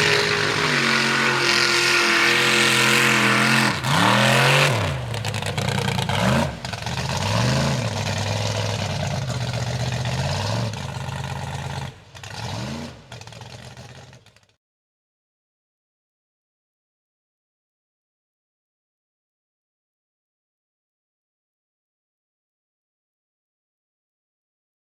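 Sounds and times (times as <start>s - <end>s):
truck engine revving: 0.0s - 14.3s.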